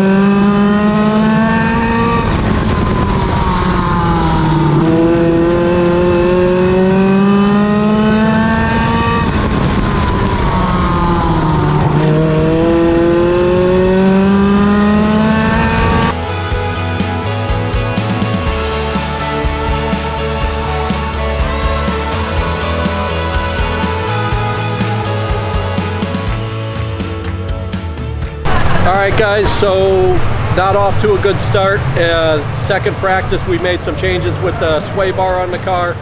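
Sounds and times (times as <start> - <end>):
race car engine running laps: 0.0 - 36.0
rock music: 12.9 - 36.0.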